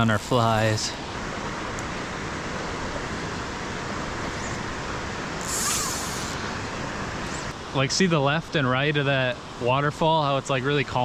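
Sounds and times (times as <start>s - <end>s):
waterfall rushing: 2.1s - 7.3s.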